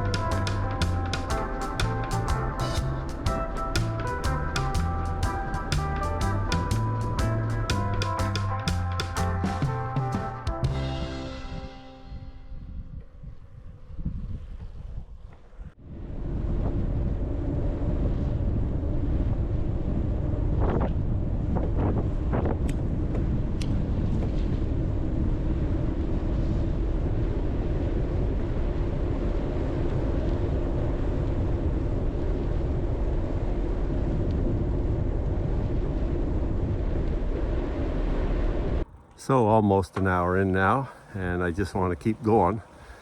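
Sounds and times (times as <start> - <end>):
road noise: 0.0 - 12.1, 37.4 - 43.0
wind rush over microphone: 0.0 - 39.6.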